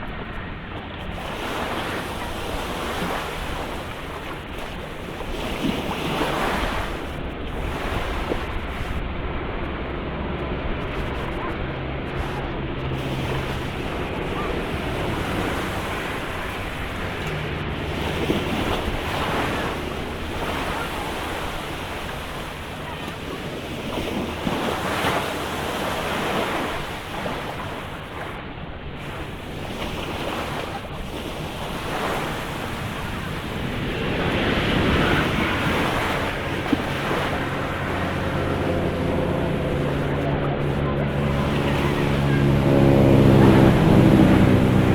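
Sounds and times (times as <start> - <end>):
sea waves breaking on shore: 0.0 - 44.9
wind buffeting microphone: 0.0 - 44.9
steady low hum: 6.6 - 26.2, 31.4 - 44.9.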